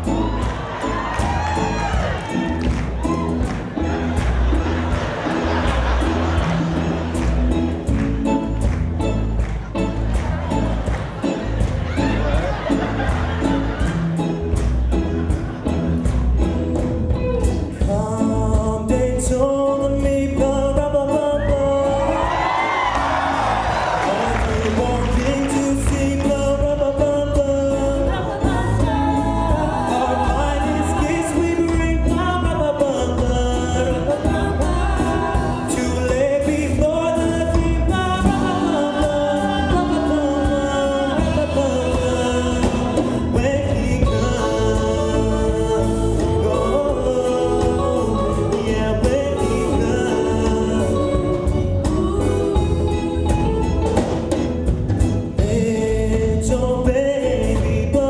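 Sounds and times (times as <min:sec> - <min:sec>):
band with steady beat: 0:00.0 - 0:58.0
people singing: 0:17.8 - 0:54.2
choir singing: 0:28.0 - 0:31.7, 0:33.4 - 0:36.2, 0:38.0 - 0:54.2.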